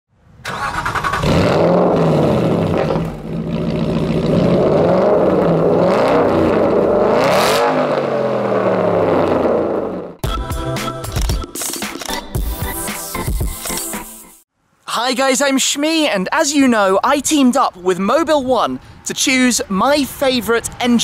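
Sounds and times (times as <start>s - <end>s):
car engine revving: 0.5s - 10.2s.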